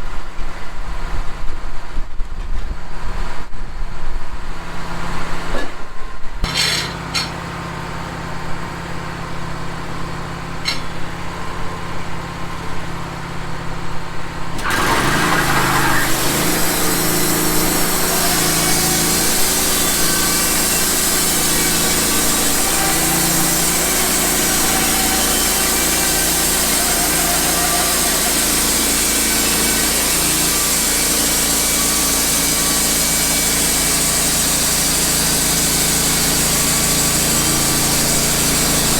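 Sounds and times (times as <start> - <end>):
band saw cutting log: 6.4 - 7.4, 14.6 - 38.9
sawmill engine running: 6.4 - 38.9.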